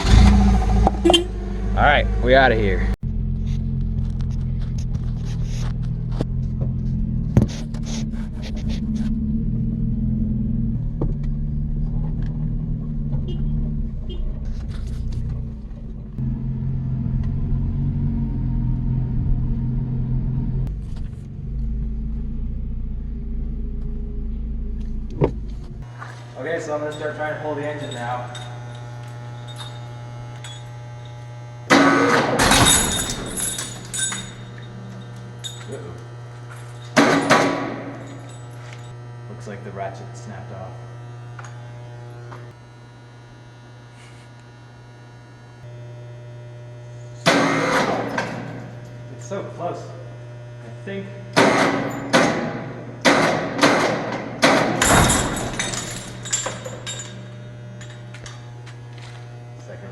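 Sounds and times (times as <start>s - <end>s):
forklift engine revving: 0.0s - 30.8s
steady low hum: 0.0s - 59.9s
heavy low thud: 24.9s - 25.8s
sharp metallic bangs ringing: 31.7s - 35.8s, 51.4s - 58.1s.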